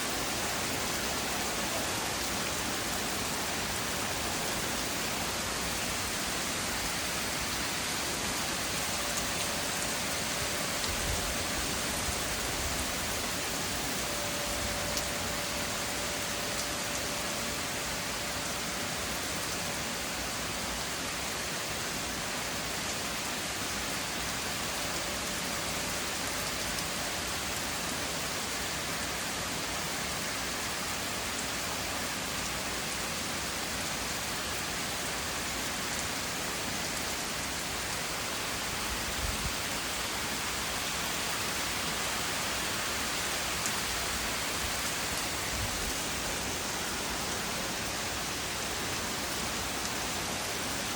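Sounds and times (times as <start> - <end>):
steady rain: 0.0 - 50.9.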